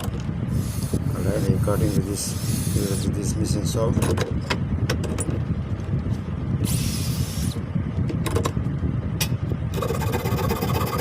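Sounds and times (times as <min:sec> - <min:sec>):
electric saw running: 0:09.8 - 0:11.0.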